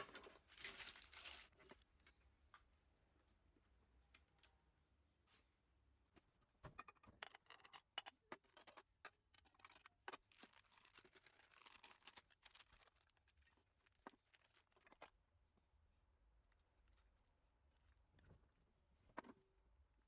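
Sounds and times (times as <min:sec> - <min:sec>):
soft rustle: 0:00.5 - 0:02.1.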